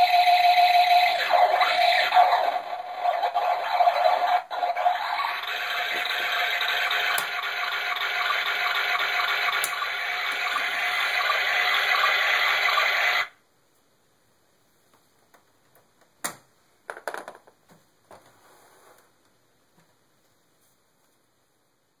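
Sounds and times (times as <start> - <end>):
toy water-like rushing noise: 0.1 - 13.3.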